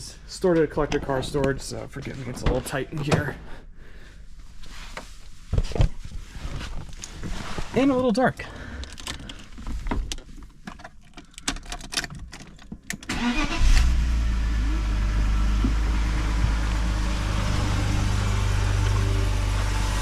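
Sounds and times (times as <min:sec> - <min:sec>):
car engine starting and idling: 0:13.0 - 0:20.0.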